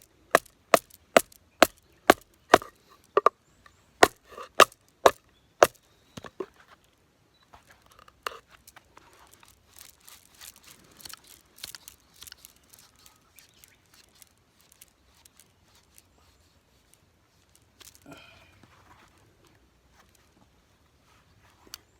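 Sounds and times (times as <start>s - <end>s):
wood scraping and snapping: 0.3s - 3.3s, 4.0s - 6.5s
knife batoning wood knocks: 4.0s - 4.8s.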